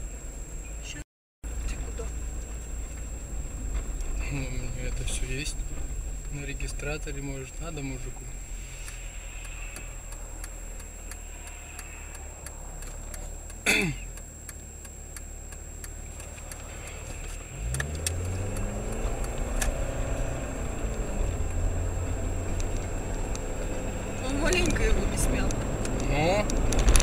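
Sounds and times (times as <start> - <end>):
car engine and road noise: 0.0 - 27.0
faint regular ticks: 8.4 - 21.7, 22.4 - 23.8.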